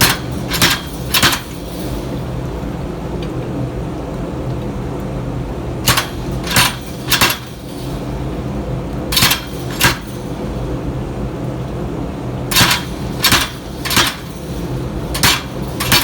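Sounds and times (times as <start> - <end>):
hammer striking steel on anvil: 0.0 - 1.6, 5.8 - 7.5, 9.2 - 10.1, 12.5 - 14.5, 15.1 - 16.0
steady low hum: 0.0 - 16.0.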